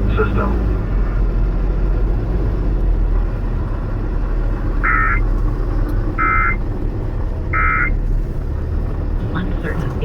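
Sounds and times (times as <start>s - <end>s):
engine and road rumble: 0.0s - 10.0s
warbling data tones: 4.8s - 5.2s, 6.2s - 6.6s, 7.6s - 8.0s.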